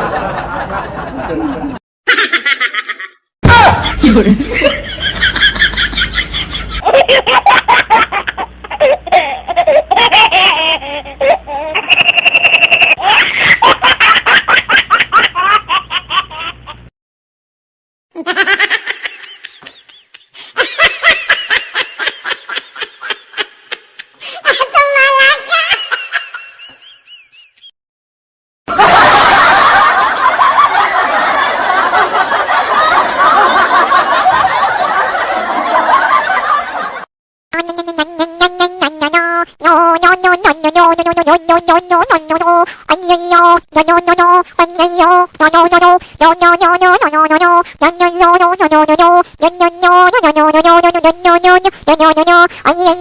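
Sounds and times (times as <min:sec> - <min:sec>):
bursts of laughter: 0:00.0 - 0:09.0, 0:18.7 - 0:24.8, 0:28.7 - 0:37.1.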